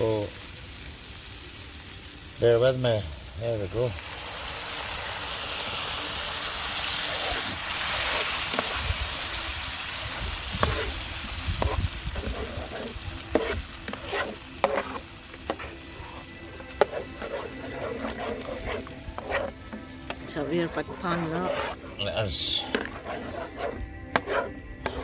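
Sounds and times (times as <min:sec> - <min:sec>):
sauce sizzling in a hot pan: 0:00.0 - 0:23.5
utensil scraping metal pan: 0:06.8 - 0:25.0.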